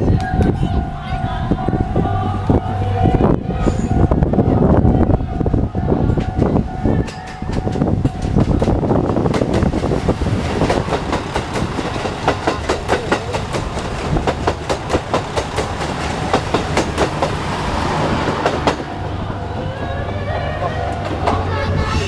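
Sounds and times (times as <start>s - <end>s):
train running rumble: 0.0s - 22.0s
wheels clicking over rail joints: 6.1s - 19.0s.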